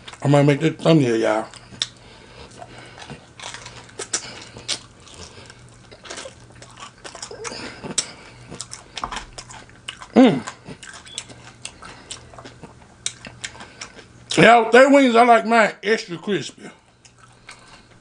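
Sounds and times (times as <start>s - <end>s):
chewing crispy chicken: 0.0s - 0.5s, 1.2s - 14.5s, 16.4s - 18.0s
person humming: 10.2s - 10.6s.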